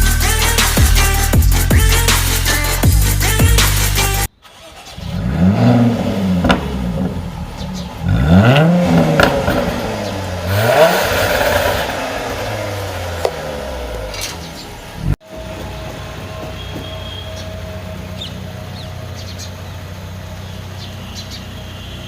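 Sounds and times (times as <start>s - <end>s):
car engine revving: 0.0s - 15.5s
exhaust pops: 5.5s - 7.9s, 8.5s - 17.0s.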